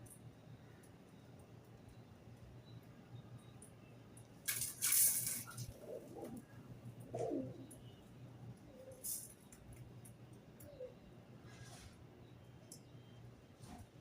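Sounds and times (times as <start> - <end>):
pigeon cooing: 5.5 - 7.8.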